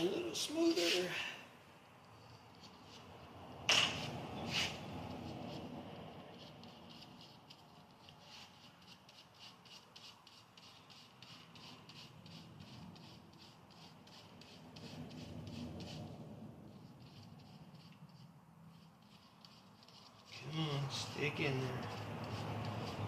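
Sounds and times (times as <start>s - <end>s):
hands rubbing rubber seal: 3.7s - 5.7s.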